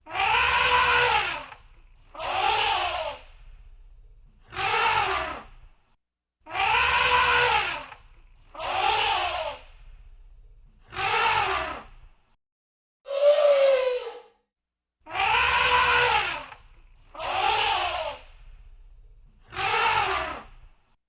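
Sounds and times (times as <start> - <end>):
elephant trumpeting: 0.1 - 1.5, 6.6 - 7.9, 15.2 - 16.5.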